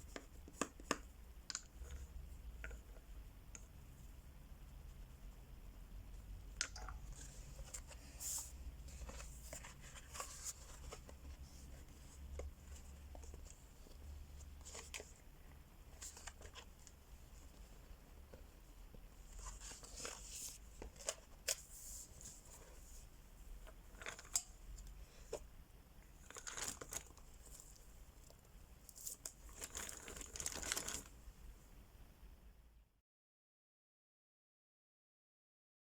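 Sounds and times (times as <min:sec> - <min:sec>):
paper rustling: 0:07.2 - 0:15.2, 0:19.3 - 0:23.1, 0:28.9 - 0:31.1.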